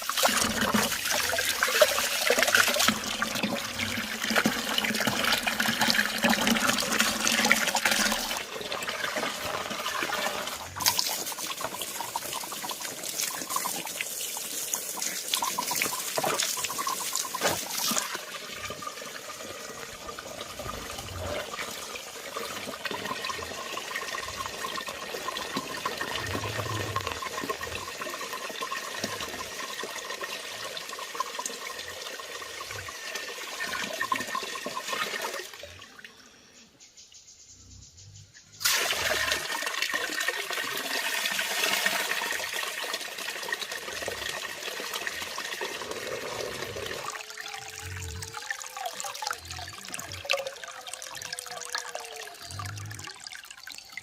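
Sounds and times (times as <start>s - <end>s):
water running and splashing: 0.0s - 35.7s.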